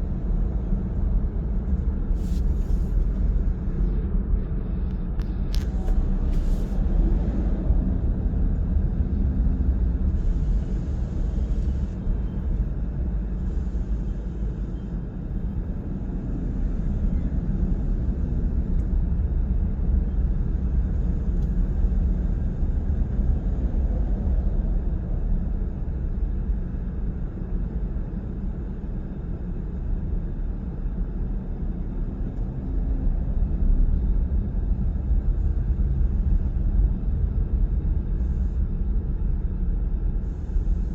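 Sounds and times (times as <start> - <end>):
car driving road rumble: 0.0 - 40.9.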